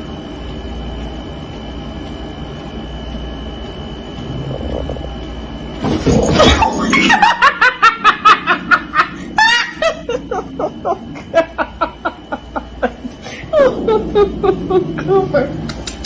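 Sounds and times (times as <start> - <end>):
person laughing hard: 6.4 - 15.7.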